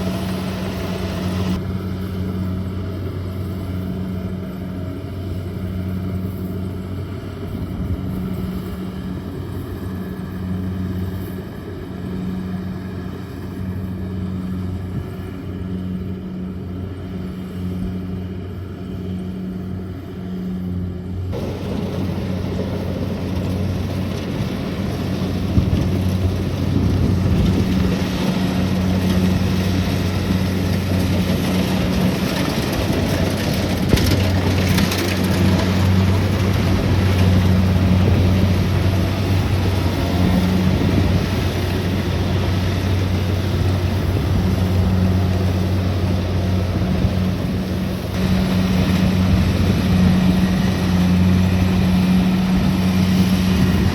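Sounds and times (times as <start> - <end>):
combine harvester engine hum: 0.0 - 53.9
broad mechanical rush: 21.3 - 53.9.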